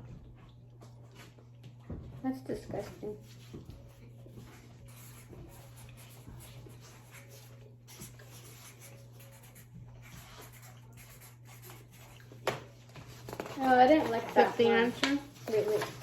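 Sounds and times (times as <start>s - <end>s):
pen scratching on paper: 4.5s - 12.2s.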